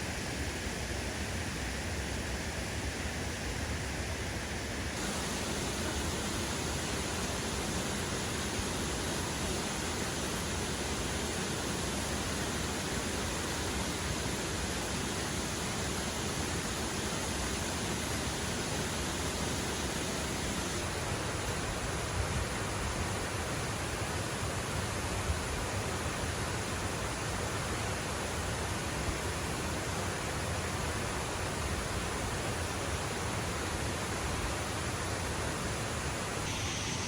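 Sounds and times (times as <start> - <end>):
waterfall rushing: 5.0 - 23.8.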